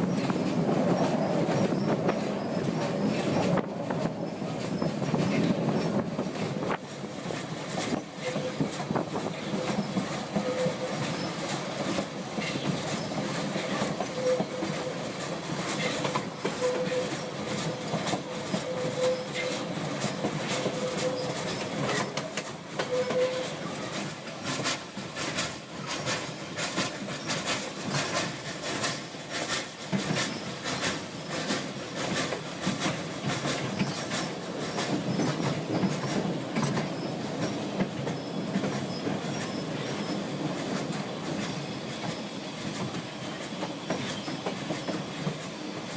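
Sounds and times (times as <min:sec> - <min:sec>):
train wheels clattering on rails: 0:00.0 - 0:45.9
wheel squeal: 0:07.9 - 0:15.0, 0:15.7 - 0:24.0.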